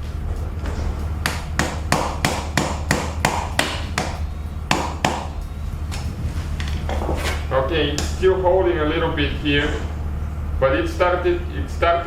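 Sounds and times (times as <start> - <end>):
hammer blows on metal: 0.0 - 10.6.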